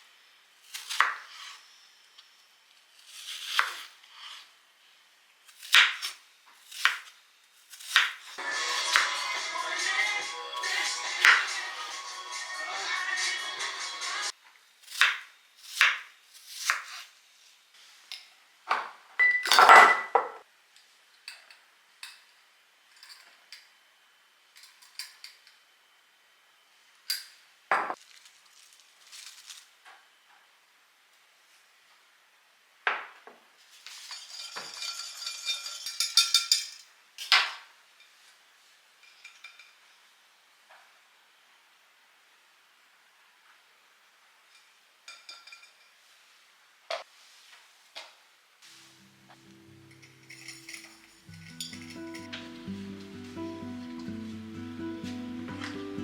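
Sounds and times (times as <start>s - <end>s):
dishes and utensils clinking: 33.9s - 37.4s, 44.6s - 46.0s, 49.4s - 52.4s.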